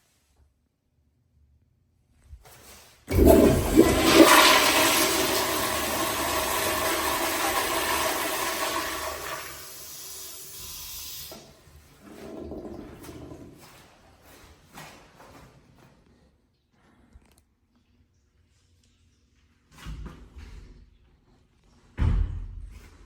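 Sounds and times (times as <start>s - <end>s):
toilet flushing: 3.1s - 14.0s.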